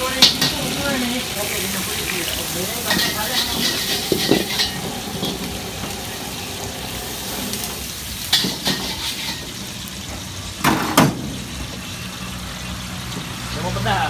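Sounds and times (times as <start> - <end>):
metal utensils clinking on wok: 0.0 - 1.1, 2.7 - 5.5, 8.2 - 9.6
seafood sizzling in hot oil: 0.0 - 14.0.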